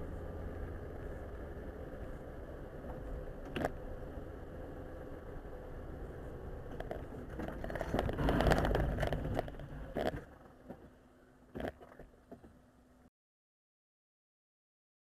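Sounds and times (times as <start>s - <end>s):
car collision crunch: 6.8s - 12.6s.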